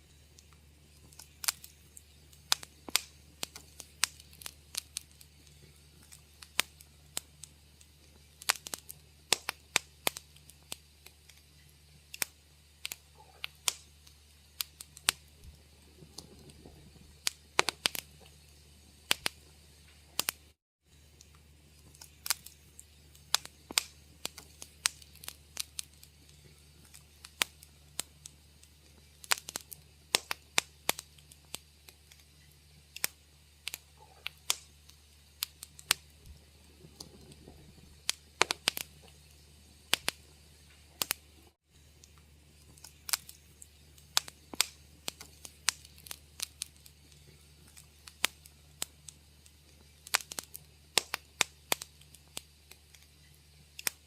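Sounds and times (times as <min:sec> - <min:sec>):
wood fire crackling: 0:00.0 - 0:54.0
low hum: 0:15.2 - 0:20.2, 0:35.8 - 0:42.8.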